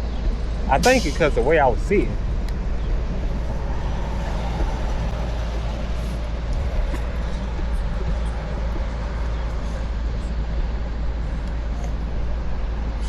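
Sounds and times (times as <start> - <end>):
road and tyre noise: 0.0 - 13.0
wind buffeting microphone: 0.0 - 13.0.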